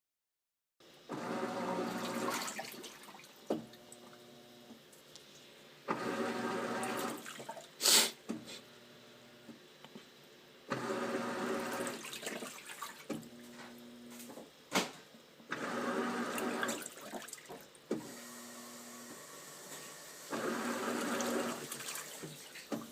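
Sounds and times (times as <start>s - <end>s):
water churning in washing machine: 1.1s - 4.7s, 5.9s - 7.7s, 10.7s - 14.1s, 15.5s - 22.9s
washing machine motor hum: 1.1s - 4.8s, 5.8s - 7.6s, 8.3s - 9.6s, 10.7s - 14.4s, 15.5s - 22.9s.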